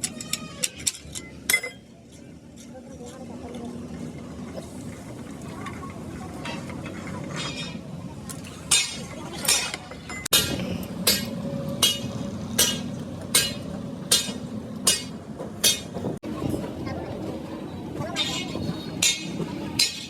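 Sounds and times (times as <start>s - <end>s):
hammer striking metal: 8.7s - 16.0s, 18.2s - 20.0s.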